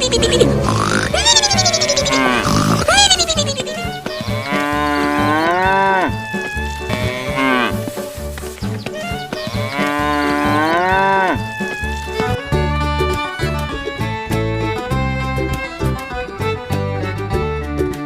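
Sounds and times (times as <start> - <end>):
cow mooing: 0.6 - 3.2, 4.2 - 6.2, 9.5 - 11.4.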